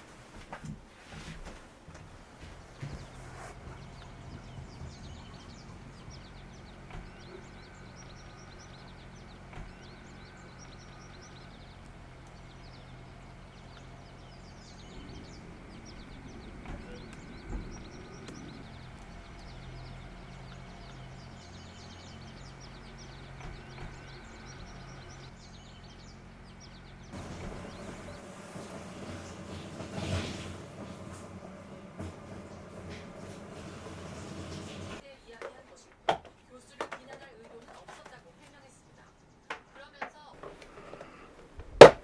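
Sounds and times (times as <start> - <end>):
songbirds chirping and trilling: 0.0 - 35.4, 36.5 - 42.0
steady low hum: 1.8 - 34.3.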